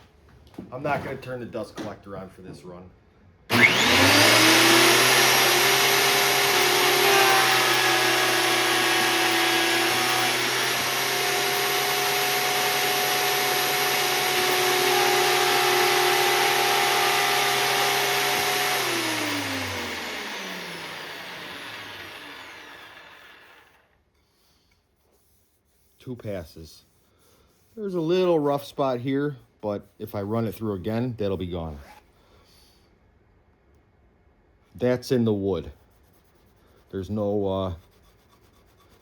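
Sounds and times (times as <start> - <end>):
benchtop planer whining: 3.5 - 24.0.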